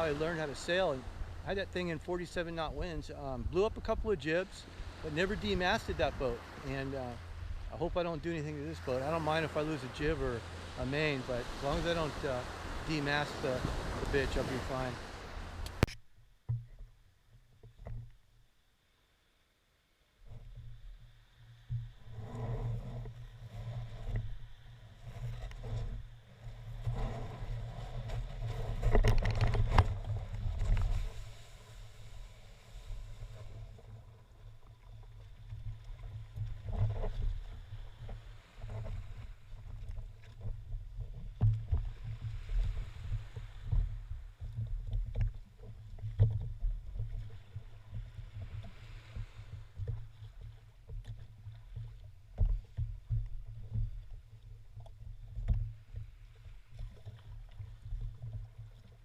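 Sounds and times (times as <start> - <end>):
boat engine low rumble: 0.0 - 18.4, 20.0 - 59.0
knocks and splashes: 23.0 - 31.4, 33.1 - 59.0.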